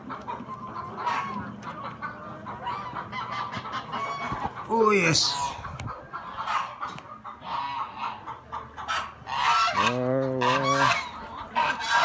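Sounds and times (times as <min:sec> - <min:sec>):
geese honking: 0:06.2 - 0:12.0.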